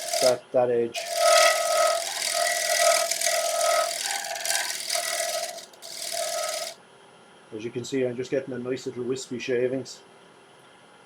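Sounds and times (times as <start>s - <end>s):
gouge scraping wood on lathe: 0.0s - 0.4s, 1.0s - 6.8s
lathe turning tone: 0.0s - 0.4s, 1.0s - 6.8s.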